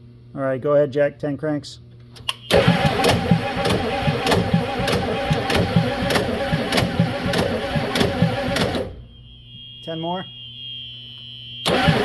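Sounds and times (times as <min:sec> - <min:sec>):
starter motor cranking diesel engine: 0:02.3 - 0:09.0, 0:11.7 - 0:12.0.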